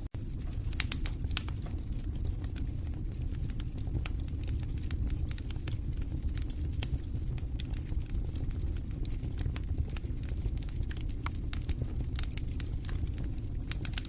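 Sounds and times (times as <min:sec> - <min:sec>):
fire flames rumbling: 0:00.0 - 0:14.0
wood fire crackling and popping: 0:00.0 - 0:14.0.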